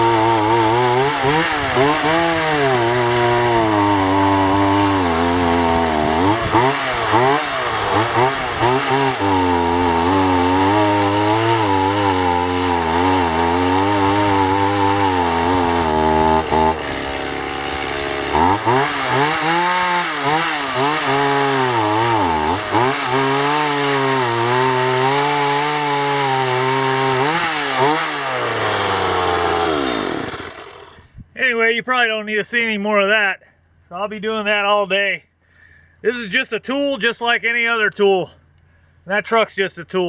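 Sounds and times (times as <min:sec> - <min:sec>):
chainsaw cutting wood: 0:00.0 - 0:31.3.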